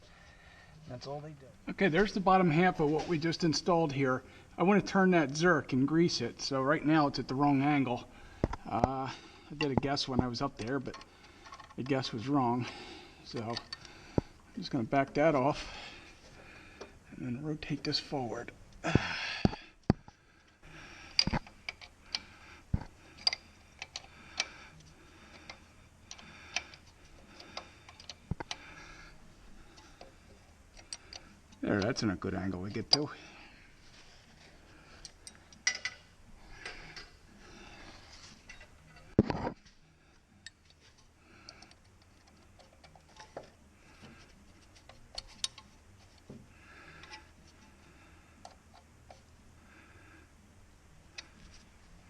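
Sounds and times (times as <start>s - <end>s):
clicks of tools being handled: 21.1s - 24.5s, 35.0s - 37.1s, 44.8s - 46.4s.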